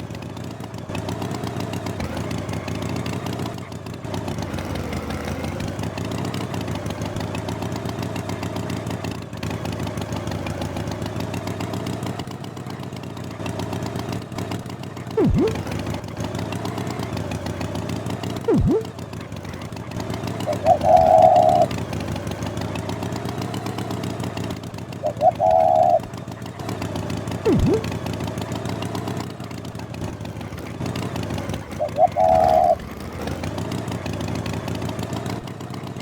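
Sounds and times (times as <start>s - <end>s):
engine running: 0.0s - 36.0s
quick falling whistle: 15.2s - 15.7s, 18.5s - 18.9s, 27.5s - 27.9s
short higher tones with blips: 15.2s - 15.7s, 18.5s - 18.9s, 20.5s - 21.7s, 25.0s - 26.0s, 27.5s - 27.9s, 31.8s - 32.8s.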